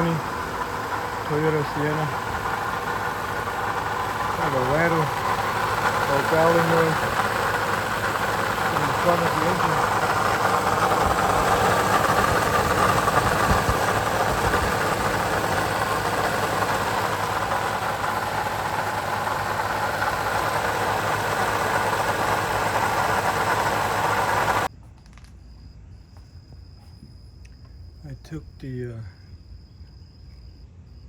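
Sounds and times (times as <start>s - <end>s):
car engine idling: 0.0s - 24.7s
engine rattle or growl: 0.0s - 24.7s.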